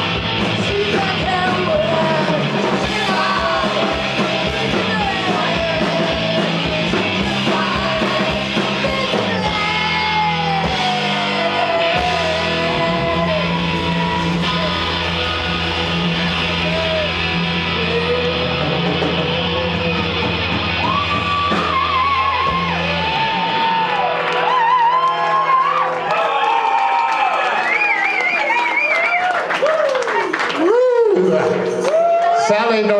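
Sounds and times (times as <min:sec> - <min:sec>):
sustained bass notes: 0:00.0 - 0:23.9
electric guitar bending notes: 0:00.0 - 0:25.0.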